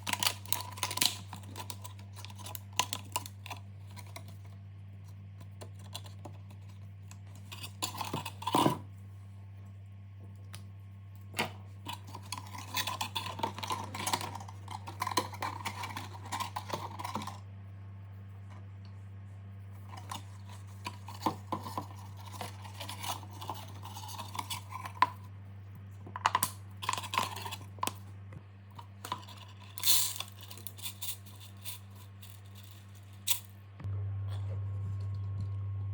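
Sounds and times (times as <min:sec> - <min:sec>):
small hard objects clicking and rattling: 0:00.0 - 0:04.4, 0:26.2 - 0:28.0, 0:28.8 - 0:33.5
steady low hum: 0:00.0 - 0:35.9.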